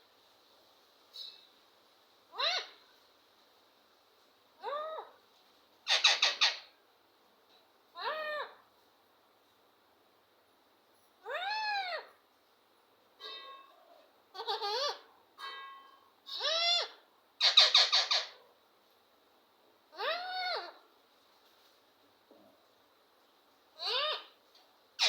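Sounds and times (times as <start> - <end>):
parrot harsh squawks: 2.3 - 2.8, 5.9 - 6.7, 14.3 - 15.1, 16.3 - 18.4, 20.0 - 20.8, 23.8 - 24.4
parrot whistled calls: 5.9 - 6.7, 16.3 - 18.4.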